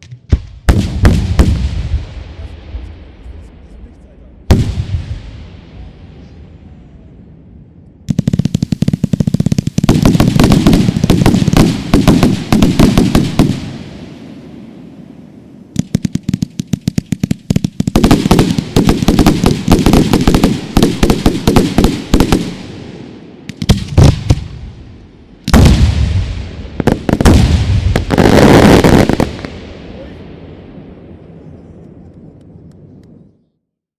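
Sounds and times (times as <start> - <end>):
fireworks cracking and banging: 0.0 - 6.4, 8.1 - 14.5, 15.7 - 24.8, 25.4 - 30.2
heavy firework booms: 0.3 - 31.6.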